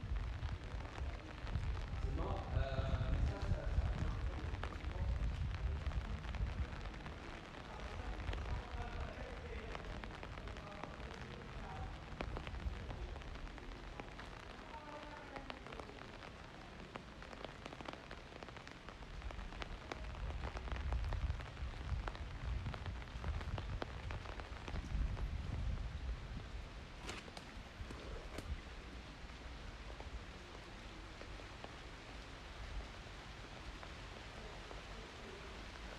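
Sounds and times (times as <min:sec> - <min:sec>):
rain drops ticking: 0:00.0 - 0:35.9.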